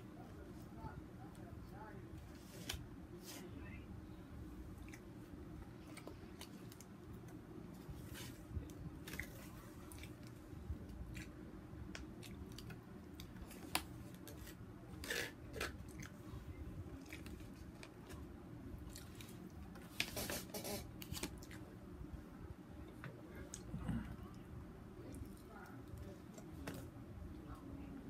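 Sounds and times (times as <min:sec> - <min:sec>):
person chewing: 0:18.8 - 0:19.5.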